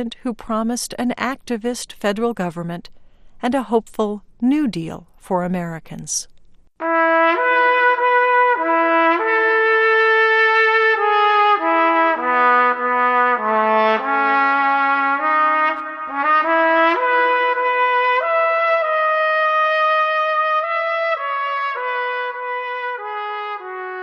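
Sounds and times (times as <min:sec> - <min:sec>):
solo trumpet melody: 0:06.8 - 0:24.0.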